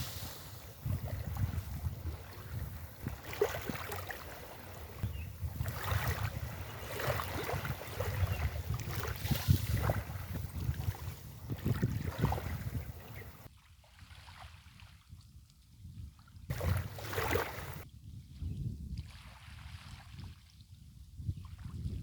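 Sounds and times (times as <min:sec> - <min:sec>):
sea waves splashing on beach: 0:00.0 - 0:13.5, 0:16.5 - 0:17.8
wind rumbling on microphone: 0:00.0 - 0:13.5, 0:15.1 - 0:22.0.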